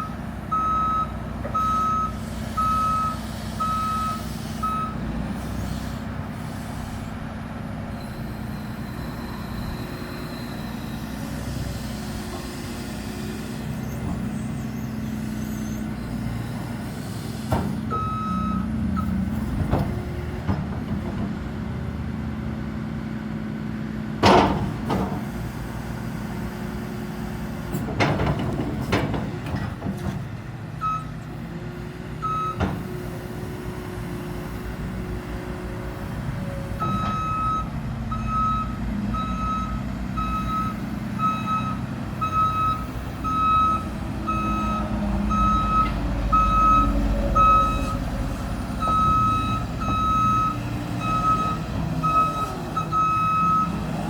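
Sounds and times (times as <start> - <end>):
reversing alarm beeping: 0.0 - 5.0, 8.0 - 11.3, 17.9 - 19.2, 30.8 - 31.2, 32.2 - 32.7, 36.8 - 48.0, 48.8 - 53.8
diesel engine running: 0.0 - 54.0.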